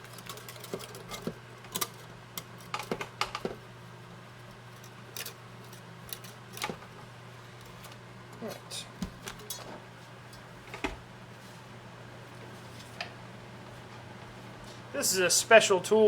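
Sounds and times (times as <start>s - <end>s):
metal tools clicking and tapping: 0.0s - 3.5s, 6.1s - 6.8s.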